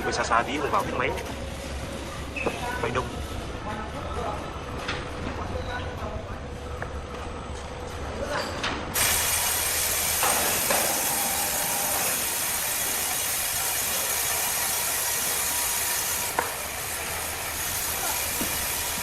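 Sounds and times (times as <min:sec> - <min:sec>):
hissing machine noise: 0:08.9 - 0:19.0.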